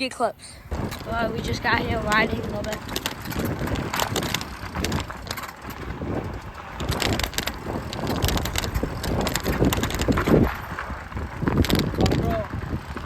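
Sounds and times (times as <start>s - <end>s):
wind rumbling on microphone: 0.2s - 13.0s
bike clicks and rattles: 0.5s - 13.0s.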